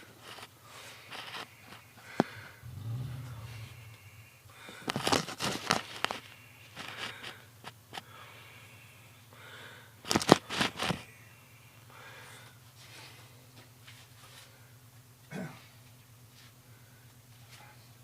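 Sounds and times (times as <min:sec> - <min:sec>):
sharp clicks and rustles: 0:00.0 - 0:08.0, 0:10.0 - 0:11.1
car engine idling: 0:00.6 - 0:18.0.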